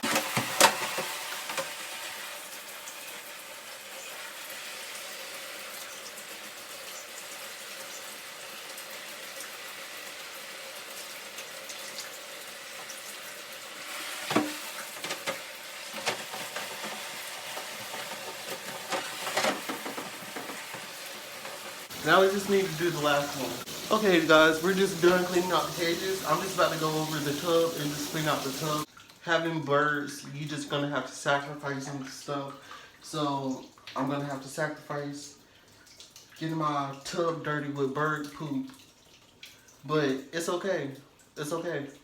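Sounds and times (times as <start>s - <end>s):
shower spray into bathtub: 0.0s - 28.9s.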